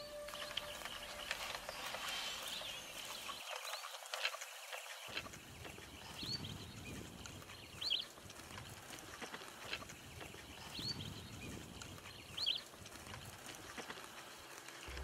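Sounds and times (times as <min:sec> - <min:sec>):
bird chirping: 0:00.0 - 0:08.3, 0:09.7 - 0:12.8.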